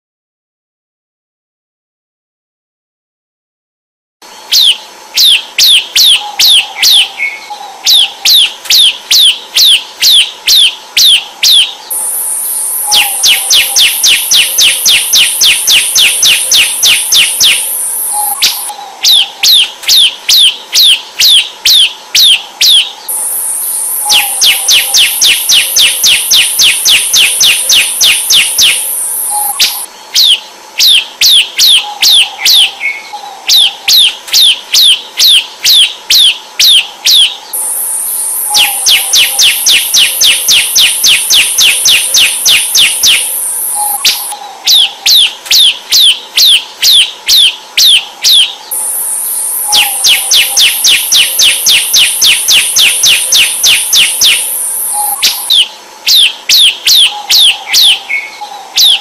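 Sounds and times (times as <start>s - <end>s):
bird singing down-slurred notes: 4.6s - 34.5s, 37.1s - 45.7s, 48.3s - 59.0s
high buzzing trill: 11.5s - 18.7s, 23.1s - 29.9s, 37.5s - 44.4s, 48.7s - 55.6s.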